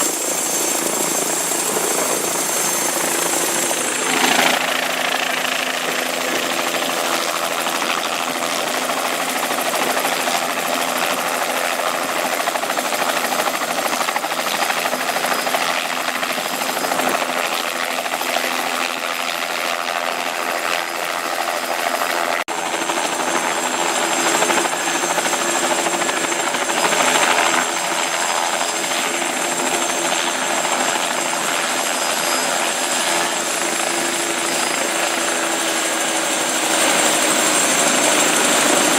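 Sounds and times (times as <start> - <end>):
helicopter engine and rotor noise: 0.0 - 38.9.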